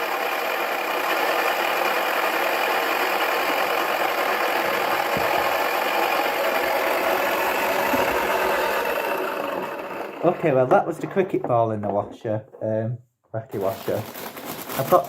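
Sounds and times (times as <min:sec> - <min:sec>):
toy washing machine whirring: 0:00.0 - 0:11.3.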